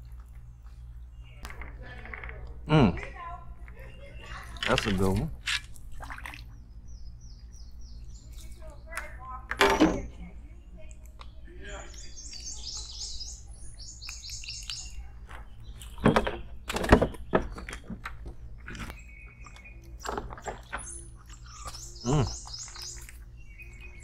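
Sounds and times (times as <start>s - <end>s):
songbird singing high notes: 11.7s - 15.0s, 20.8s - 24.0s.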